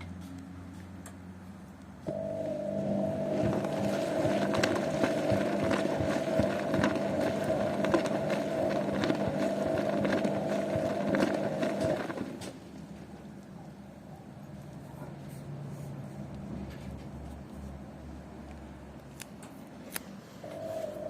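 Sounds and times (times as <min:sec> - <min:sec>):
washing machine running: 0:02.1 - 0:13.2, 0:20.4 - 0:21.0.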